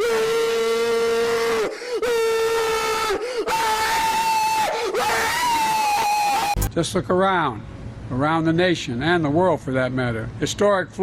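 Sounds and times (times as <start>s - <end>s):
voice wailing in long cries: 0.0s - 6.6s.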